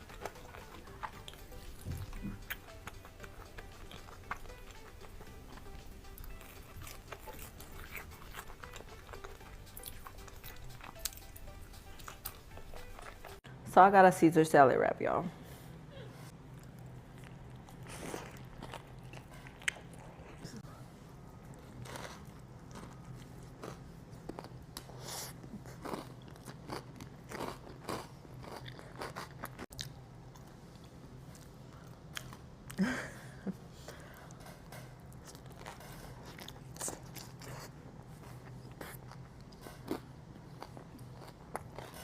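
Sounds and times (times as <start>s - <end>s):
low steady hum: 0.0s - 28.4s
person biting and chewing: 0.1s - 13.4s.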